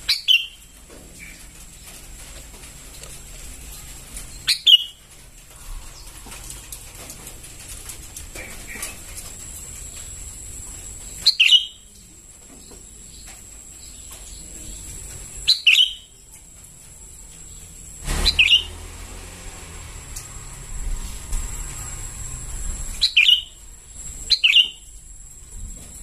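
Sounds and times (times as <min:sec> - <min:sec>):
bird chirping double notes: 0:04.4 - 0:05.0, 0:11.2 - 0:11.9, 0:15.4 - 0:16.2, 0:18.2 - 0:18.8, 0:23.0 - 0:23.6, 0:24.3 - 0:24.9.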